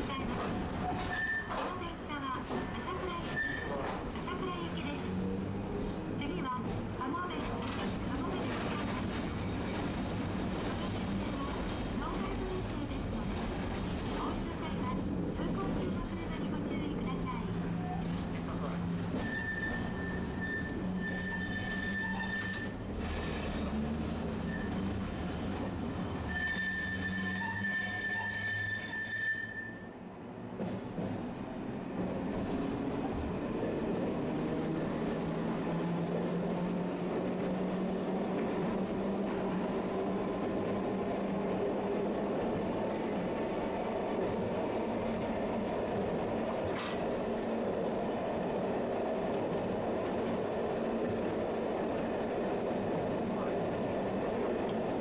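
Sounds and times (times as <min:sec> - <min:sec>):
tram running rumble: 0:00.0 - 0:28.7, 0:30.0 - 0:55.0
streetcar wheels squealing: 0:00.3 - 0:01.8, 0:02.5 - 0:05.2, 0:17.9 - 0:30.0.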